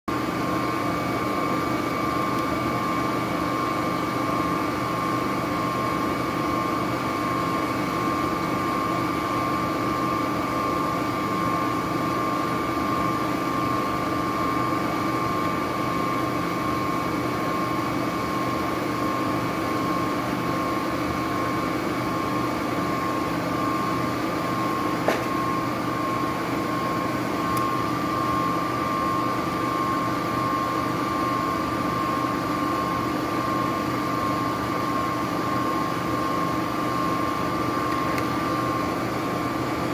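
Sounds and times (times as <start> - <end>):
fan unit humming with high whine: 0.1 - 39.9.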